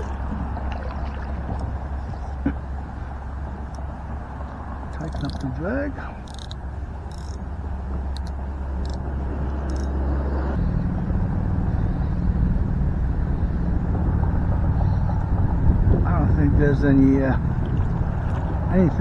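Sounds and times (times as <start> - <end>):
wind buffeting microphone: 0.0 - 19.0
fishing reel drag clicks: 6.2 - 7.4.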